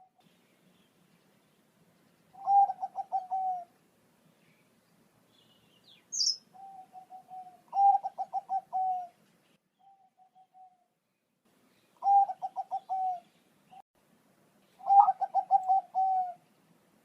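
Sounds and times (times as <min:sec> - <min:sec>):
dove cooing: 0:02.3 - 0:03.8, 0:06.2 - 0:09.2, 0:09.9 - 0:10.8, 0:12.0 - 0:13.3, 0:14.8 - 0:16.4
high bird chirp: 0:05.3 - 0:09.0.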